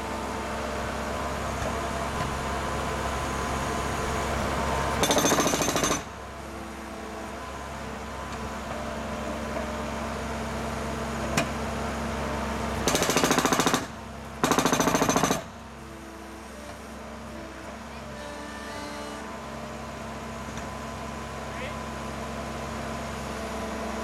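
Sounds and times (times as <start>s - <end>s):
skid steer engine running: 0.0s - 24.0s
concrete breaker hammering: 5.0s - 6.1s, 12.8s - 15.5s.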